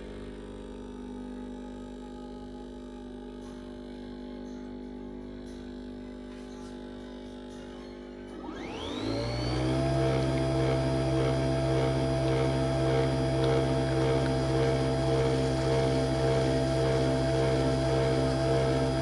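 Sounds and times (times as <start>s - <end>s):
kitchen appliance motor whining: 6.7s - 19.0s.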